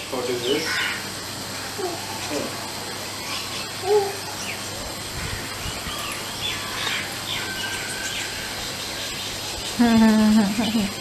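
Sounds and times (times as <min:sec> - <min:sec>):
birds chirping: 0:00.0 - 0:11.0
steady background hiss: 0:00.0 - 0:11.0.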